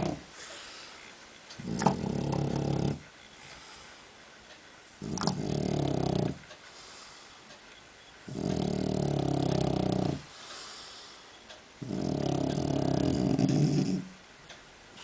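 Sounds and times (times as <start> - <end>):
dog snoring: 0.0 - 0.6, 1.6 - 3.1, 5.0 - 6.5, 8.3 - 10.7, 11.8 - 14.2
soft airy breath: 0.3 - 1.2, 3.4 - 4.3, 6.6 - 7.6, 10.3 - 11.6.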